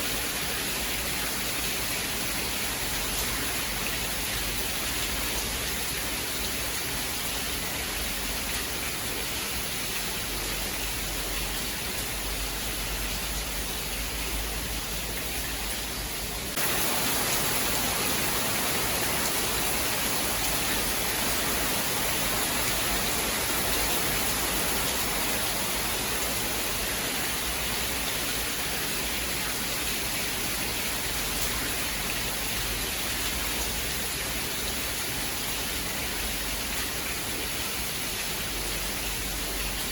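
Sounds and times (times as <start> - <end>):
dense rainfall hiss: 0.0 - 39.9.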